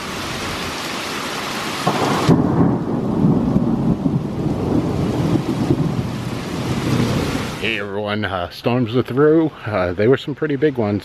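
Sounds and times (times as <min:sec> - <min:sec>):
rain falling: 0:00.0 - 0:11.0
low rolling thunder: 0:01.8 - 0:07.8.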